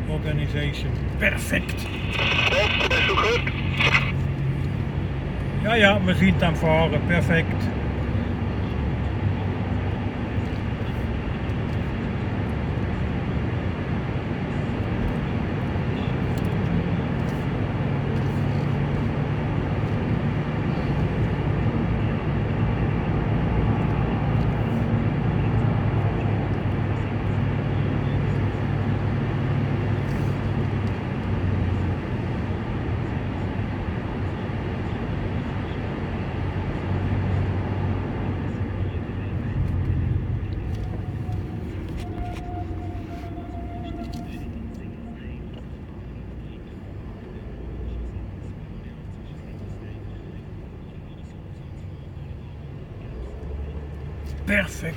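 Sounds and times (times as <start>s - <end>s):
truck diesel engine running: 0.0s - 5.6s
road noise: 0.0s - 54.9s.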